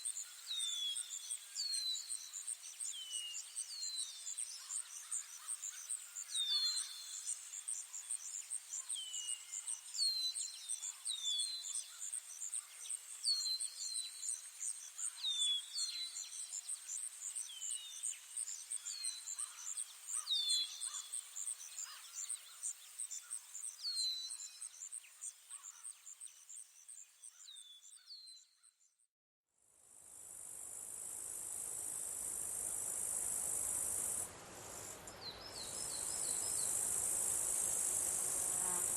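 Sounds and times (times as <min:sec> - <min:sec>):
high insect buzz: 0:30.0 - 0:38.9
insects trilling: 0:30.2 - 0:38.9.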